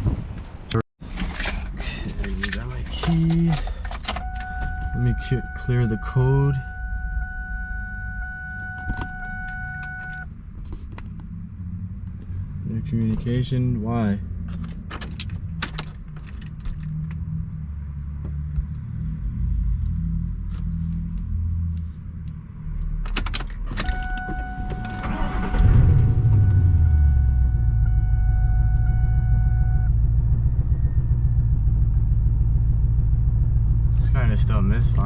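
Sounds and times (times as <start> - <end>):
car engine starting and idling: 1.0 - 17.4, 19.8 - 35.0
keys jangling: 1.3 - 4.4
two-note electronic tone: 4.2 - 10.2, 23.9 - 29.9.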